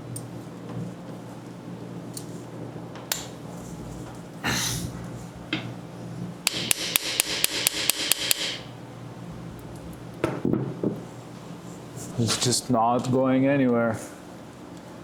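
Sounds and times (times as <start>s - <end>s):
hammer striking metal: 6.5s - 8.7s.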